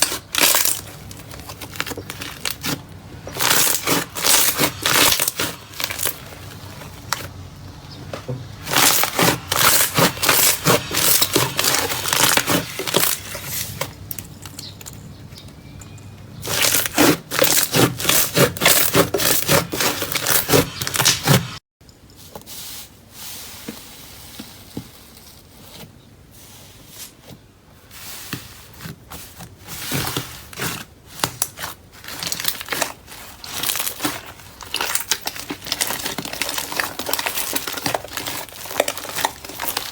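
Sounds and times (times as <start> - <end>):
crunchy slime crackling and popping: 0.0 - 7.3, 8.6 - 15.0, 16.4 - 21.3, 29.9 - 39.9.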